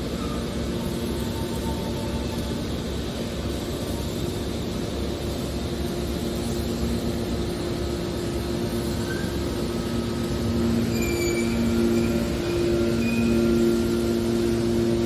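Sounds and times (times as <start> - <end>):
baler machine humming: 7.2 - 15.0.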